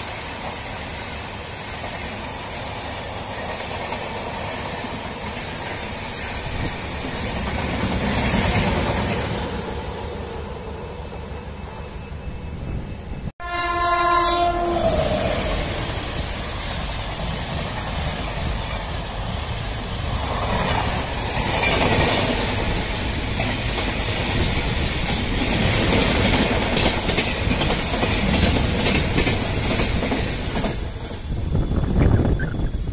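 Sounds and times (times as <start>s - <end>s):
train rumbling past: 0.0s - 32.9s
locomotive horn: 13.4s - 15.8s
wheels clacking over rail joints: 20.1s - 31.3s.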